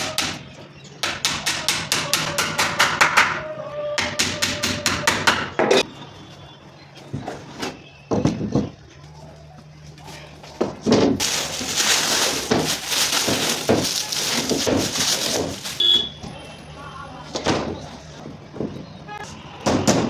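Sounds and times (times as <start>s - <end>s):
rapid hammering on wood: 0.0s - 0.4s, 1.0s - 3.4s, 4.0s - 5.8s.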